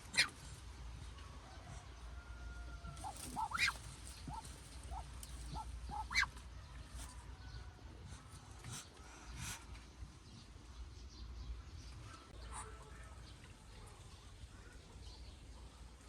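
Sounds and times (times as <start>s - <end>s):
poultry calling: 0.0s - 0.4s, 3.0s - 6.4s
poultry squawks: 0.0s - 0.4s, 3.0s - 6.4s.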